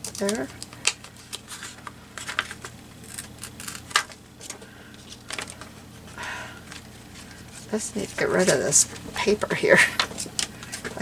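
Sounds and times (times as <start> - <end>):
paper crinkling and trimming: 0.0 - 5.8.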